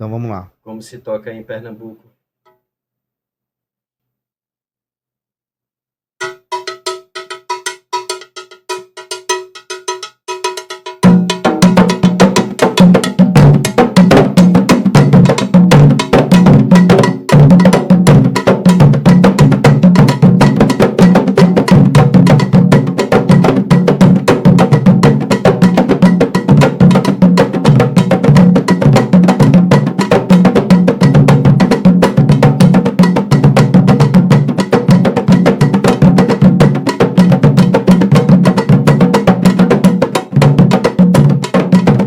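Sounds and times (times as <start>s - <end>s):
metal bell strikes: 6.2s - 11.0s
percussion ensemble drumming: 6.2s - 42.0s.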